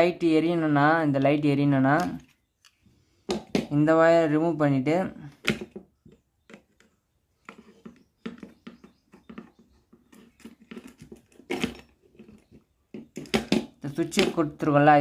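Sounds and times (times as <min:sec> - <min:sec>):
wire clicks and scratches: 0:05.4 - 0:14.4.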